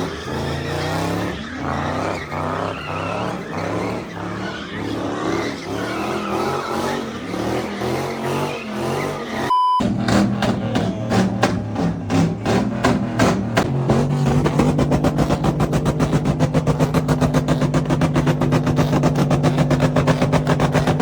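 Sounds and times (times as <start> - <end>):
car engine revving hard: 0.0 - 21.0
tires squealing: 0.0 - 21.0
short steady beep: 9.5 - 9.9.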